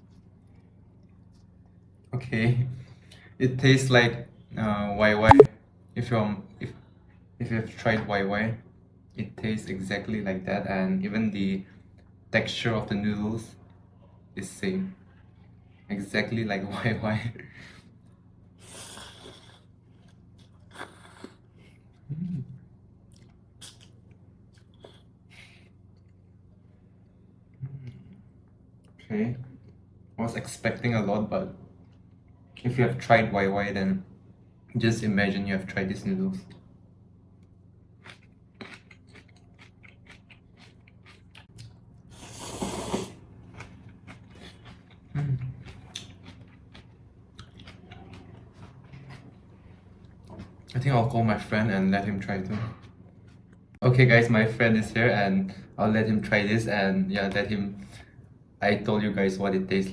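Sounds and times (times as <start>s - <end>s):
person chewing noodles: 0.0s - 2.1s, 18.6s - 22.2s, 23.0s - 26.4s, 37.9s - 50.7s
closed-mouth hum: 5.0s - 5.5s, 20.7s - 22.6s, 27.5s - 29.8s
slurping noodles: 18.6s - 21.4s, 42.1s - 43.3s
wet chewing clicks: 38.0s - 41.8s, 43.5s - 49.3s.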